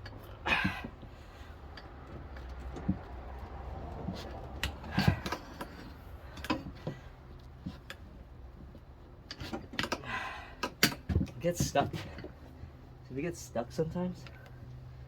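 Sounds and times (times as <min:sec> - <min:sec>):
metal clicks and knocks: 0:01.7 - 0:07.0, 0:07.6 - 0:10.0, 0:10.6 - 0:12.4
tire iron scrape: 0:03.9 - 0:08.2.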